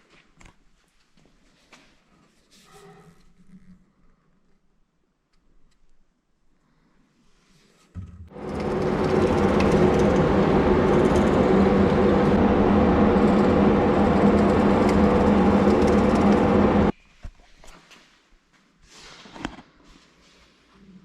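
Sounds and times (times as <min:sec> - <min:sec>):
electric power tool motor running: 0:08.3 - 0:16.9.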